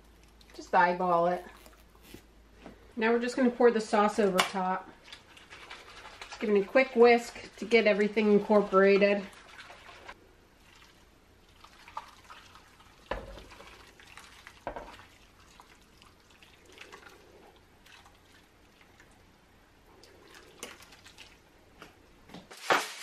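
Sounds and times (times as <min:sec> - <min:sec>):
liquid pouring and splattering: 0:22.5 - 0:23.0.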